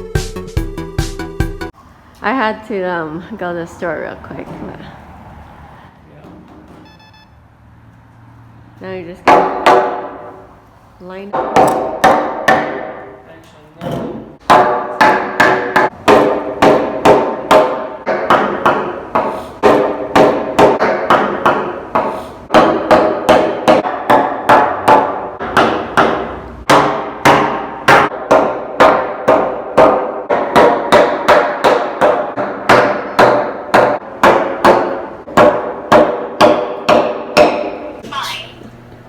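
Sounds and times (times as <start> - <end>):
hammer striking nails into wood: 9.2 - 10.2, 11.3 - 13.0, 14.0 - 37.8.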